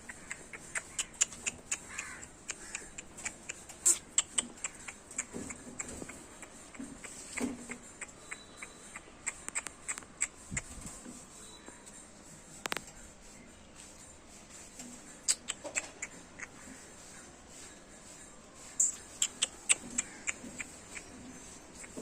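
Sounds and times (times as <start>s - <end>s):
puppy claws clicking and tapping: 0.0s - 10.7s.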